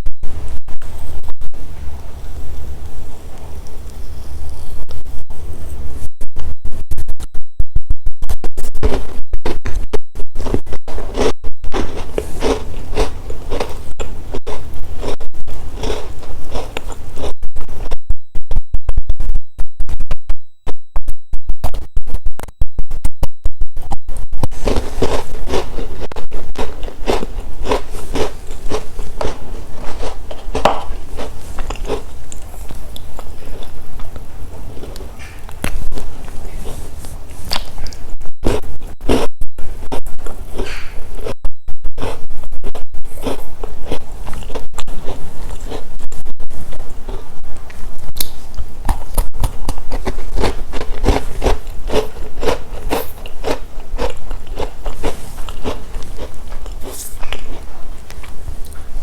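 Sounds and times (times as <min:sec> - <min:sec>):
low electrical hum: 0:00.0 - 0:59.0
chewing crunchy snack: 0:10.4 - 0:17.8, 0:24.5 - 0:39.3, 0:40.0 - 0:41.4, 0:42.0 - 0:58.9.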